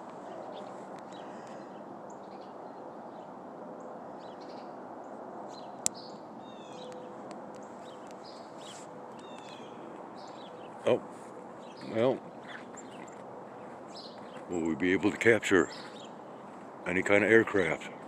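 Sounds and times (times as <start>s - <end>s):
small birds chirping: 5.5s - 18.0s.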